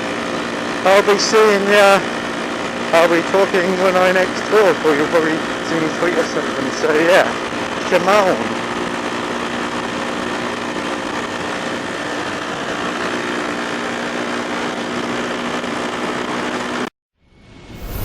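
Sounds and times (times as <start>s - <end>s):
motorcycle engine running: 0.0s - 16.9s
rushing noise: 17.2s - 18.0s.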